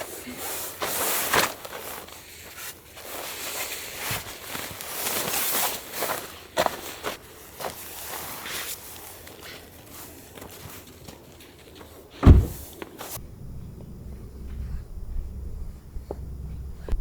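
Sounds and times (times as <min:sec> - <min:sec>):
heavy thump: 0:12.2 - 0:12.7.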